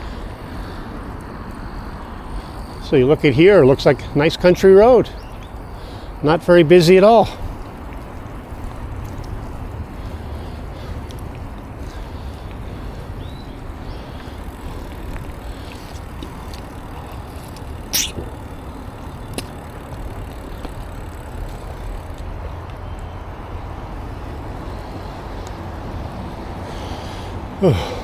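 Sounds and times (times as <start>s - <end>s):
wind and bicycle tyre rumble: 0.0s - 28.0s.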